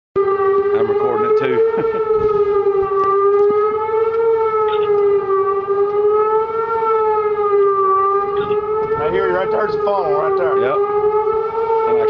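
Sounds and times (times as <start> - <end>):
tornado warning siren wailing: 0.2 - 12.0.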